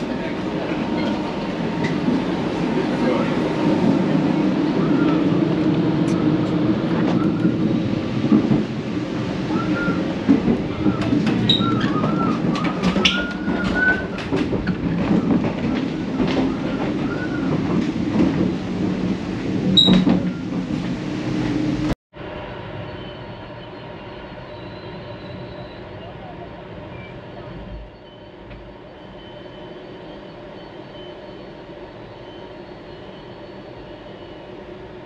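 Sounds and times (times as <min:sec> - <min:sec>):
train rumbling inside carriage: 0:00.0 - 0:35.0
faint wavering squeals: 0:22.8 - 0:34.7.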